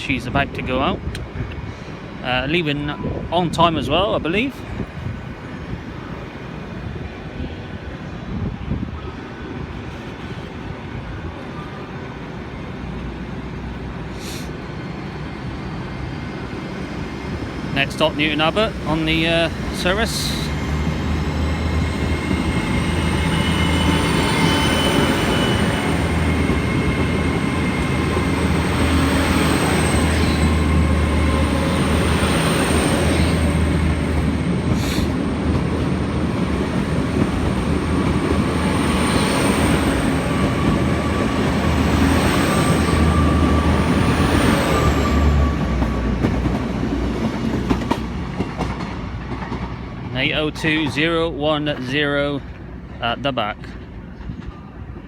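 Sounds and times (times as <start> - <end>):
train engines and rolling wheels: 0.0 - 55.0
high-pitched wheel squeal: 21.4 - 33.6.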